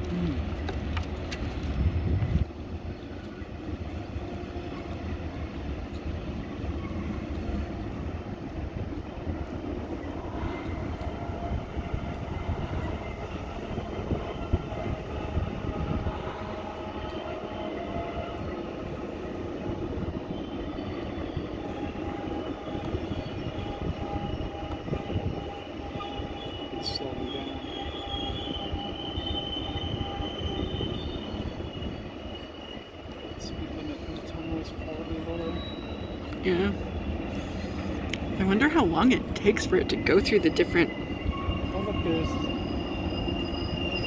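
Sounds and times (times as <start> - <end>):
train wheels rumbling on rails: 0.0 - 44.0
high wheel squeal: 19.9 - 44.0.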